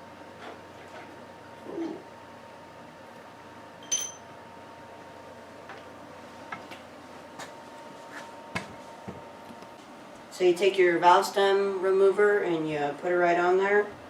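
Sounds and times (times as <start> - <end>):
metal tool clinking: 3.8 - 4.2.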